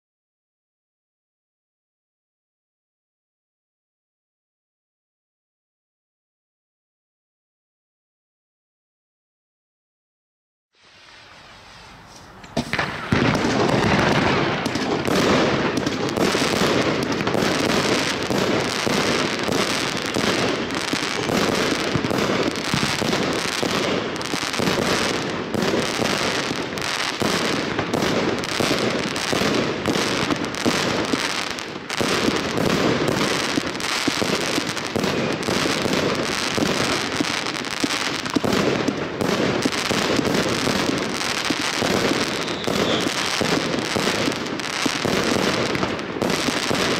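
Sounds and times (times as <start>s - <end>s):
firework barrage: 10.8s - 46.9s.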